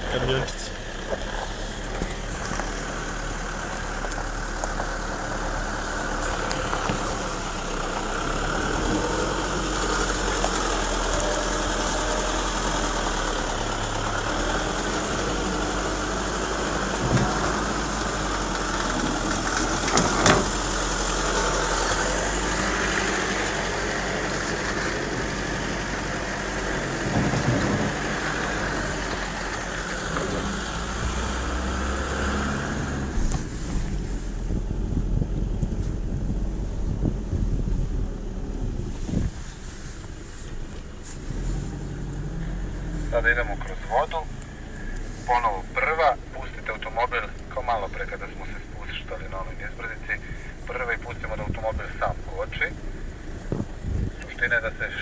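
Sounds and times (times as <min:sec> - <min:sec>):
diesel engine at low revs: 0:00.0 - 0:55.0
road noise inside vehicle: 0:00.0 - 0:55.0
truck knocks: 0:19.6 - 0:20.6.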